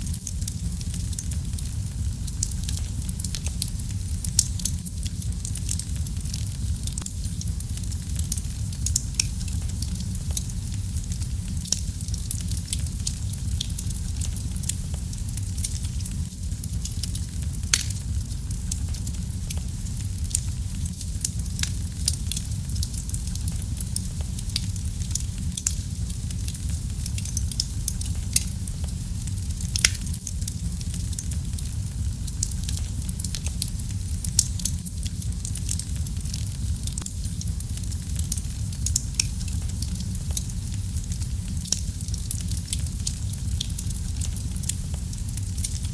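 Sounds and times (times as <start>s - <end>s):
low rumble of flames: 0.0s - 45.9s
wood fire crackling and snapping: 0.0s - 45.9s
sharp pops of burning wood: 16.7s - 22.9s.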